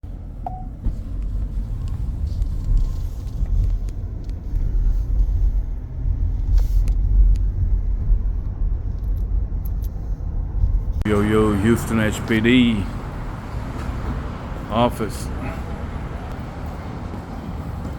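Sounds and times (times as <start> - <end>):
low rumble: 0.1 - 11.6.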